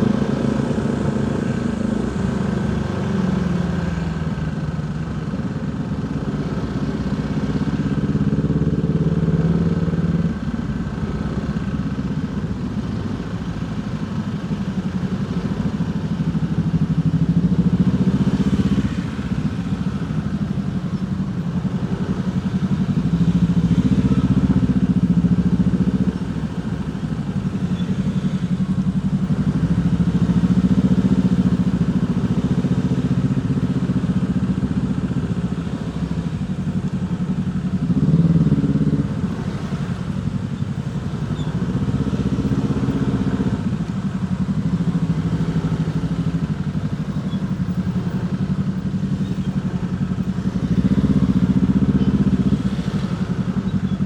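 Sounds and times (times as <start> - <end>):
motorcycle engine revving: 14.6 - 54.0.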